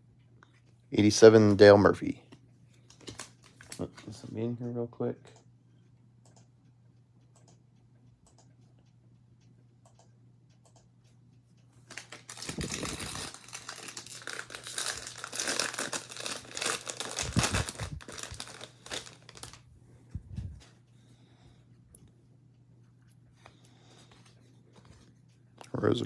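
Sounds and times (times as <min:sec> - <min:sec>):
foil wrapper tearing and crumpling: 0:03.0 - 0:03.8, 0:11.9 - 0:19.6.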